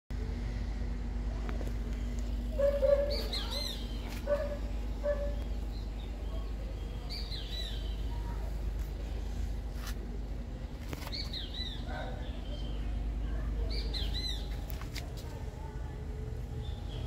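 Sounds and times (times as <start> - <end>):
low steady hum: 0.1 - 17.0
birds chirping and calling: 2.5 - 8.5, 10.8 - 14.9.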